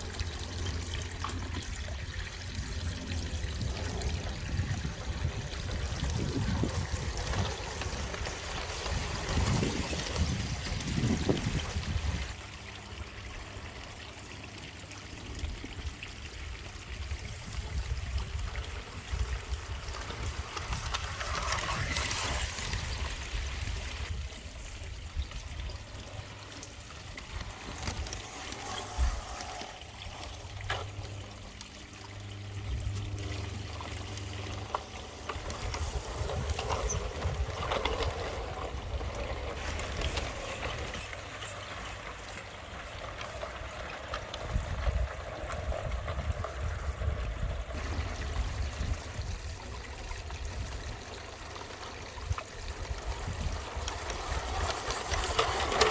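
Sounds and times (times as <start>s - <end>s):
water trickling: 0.0s - 55.9s.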